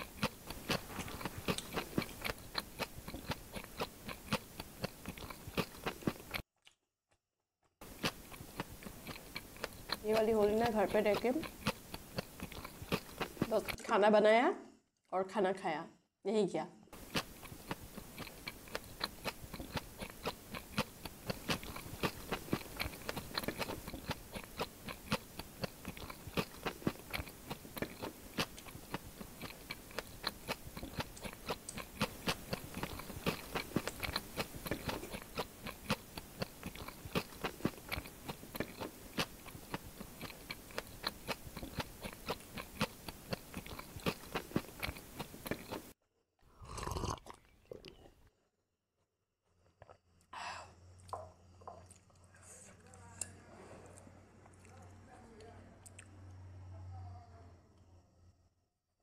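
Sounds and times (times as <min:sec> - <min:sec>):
chewing crunchy snack: 0:00.0 - 0:06.8, 0:07.8 - 0:13.9, 0:17.0 - 0:48.2.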